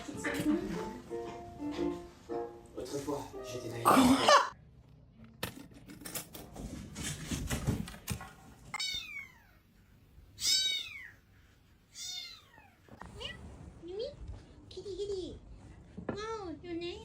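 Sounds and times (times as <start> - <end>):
cat meowing: 8.7 - 9.6, 10.4 - 11.2, 11.9 - 12.9.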